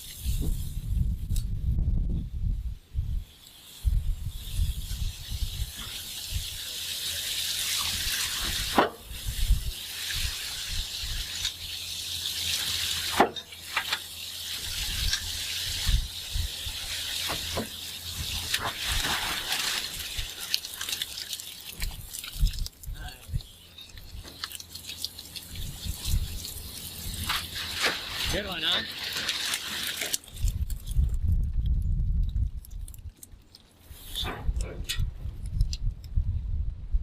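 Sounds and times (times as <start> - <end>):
water spraying hiss: 3.3 - 30.2.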